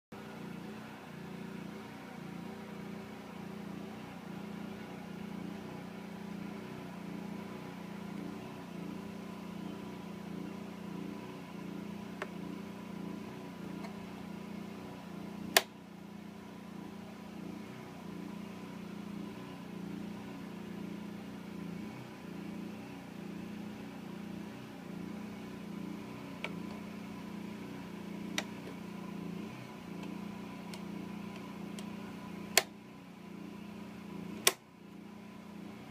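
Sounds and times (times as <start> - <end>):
generator engine humming: 0.1 - 35.9
sharp click: 34.4 - 34.6.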